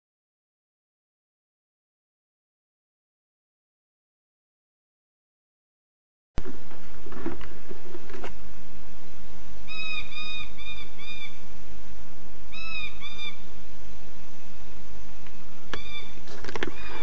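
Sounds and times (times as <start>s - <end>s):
video tape hiss and hum: 6.4s - 17.0s
bird calling: 9.7s - 11.4s, 12.5s - 13.5s, 15.7s - 17.0s.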